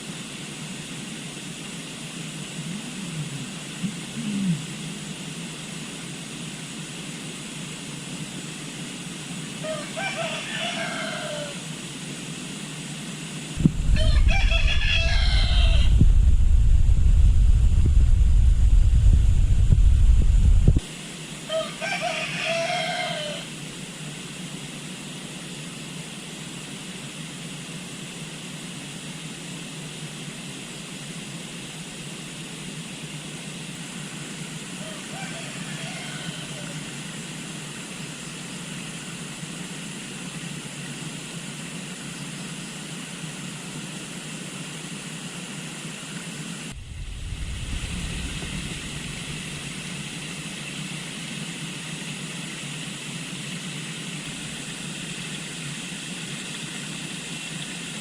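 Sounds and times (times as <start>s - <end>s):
rooster crowing: 9.6s - 11.7s, 13.8s - 16.2s, 21.5s - 23.5s, 34.8s - 37.0s
loud low rumble: 13.6s - 20.8s, 46.8s - 50.2s.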